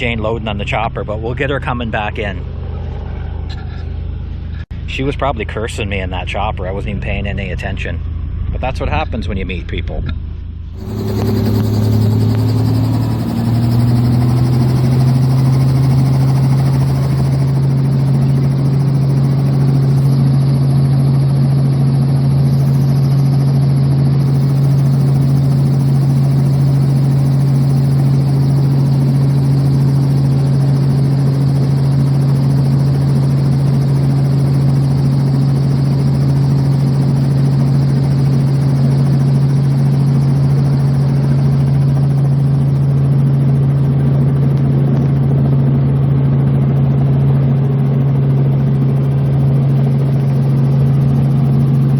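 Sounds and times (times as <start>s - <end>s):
helicopter engine drone: 0.0s - 51.9s.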